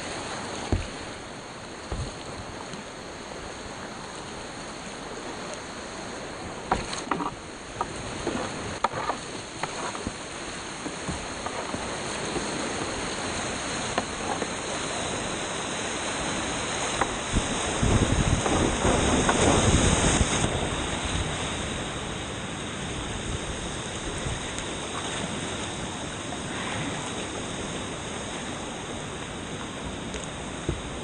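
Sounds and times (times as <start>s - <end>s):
water splashing: 0.0s - 22.1s
creek whitewater rushing: 0.0s - 31.0s.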